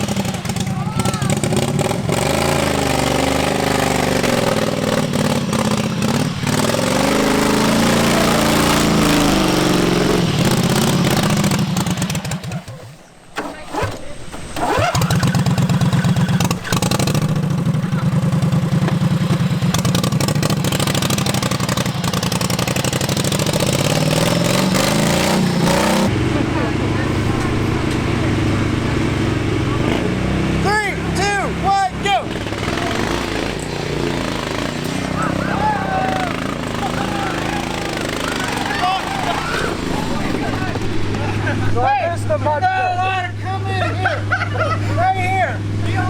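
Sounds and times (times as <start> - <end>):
small engine revving hard: 0.0 - 41.6.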